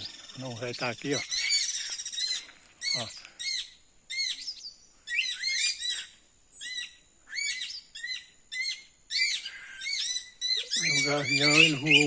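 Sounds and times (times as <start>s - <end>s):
birds screaming alarm calls: 0.0s - 12.0s.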